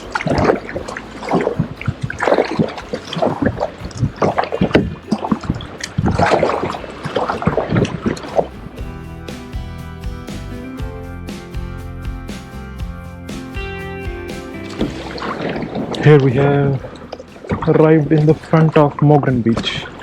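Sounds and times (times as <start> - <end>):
paddle splashing in water: 0.0 - 8.9, 14.3 - 20.0
water sloshing around boat: 0.0 - 9.0, 14.3 - 20.0.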